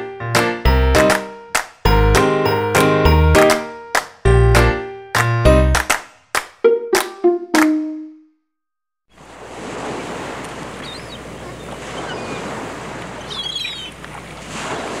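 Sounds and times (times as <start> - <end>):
rushing surf or flowing water: 9.1 - 15.0
faint bird chirps: 10.8 - 12.5, 13.1 - 14.0.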